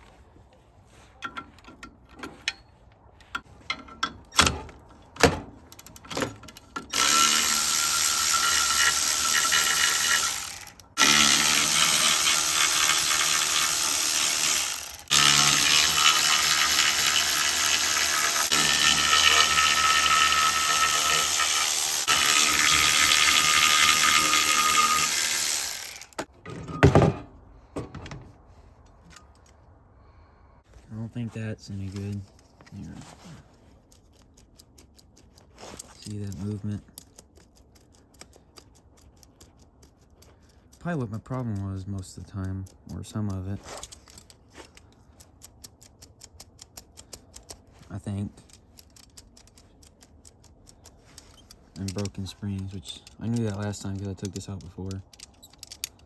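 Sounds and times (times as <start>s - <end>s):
metal parts clicking and clanking: 1.2s - 13.7s, 41.4s - 56.0s
handheld power tool running: 6.9s - 26.3s.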